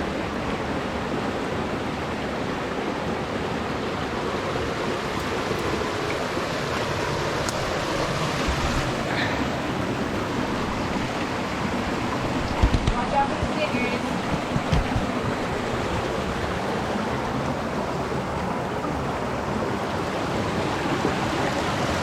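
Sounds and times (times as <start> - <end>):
creek water rushing: 0.0 - 22.0.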